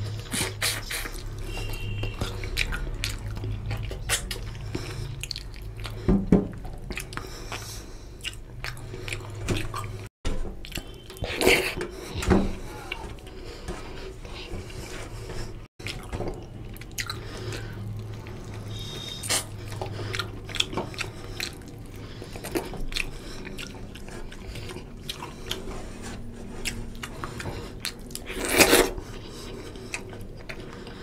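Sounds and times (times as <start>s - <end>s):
wet chewing and smacking: 0.0s - 31.0s.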